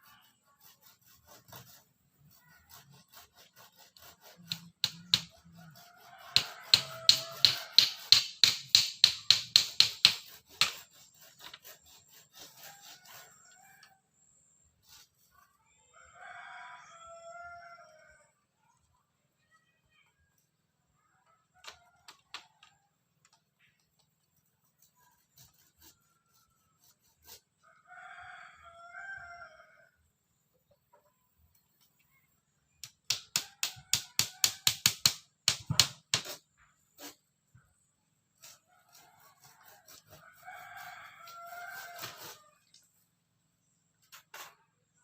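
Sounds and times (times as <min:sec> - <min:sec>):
rooster crowing: 0:05.6 - 0:08.0, 0:15.9 - 0:18.3, 0:27.6 - 0:30.0, 0:38.8 - 0:42.6.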